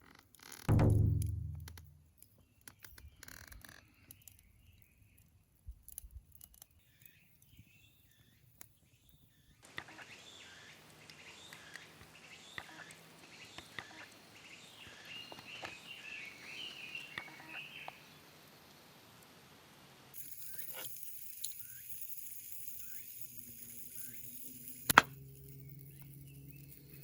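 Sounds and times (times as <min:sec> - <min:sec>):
birds chirping: 0:06.8 - 0:18.4
sharp clicks: 0:24.7 - 0:25.2.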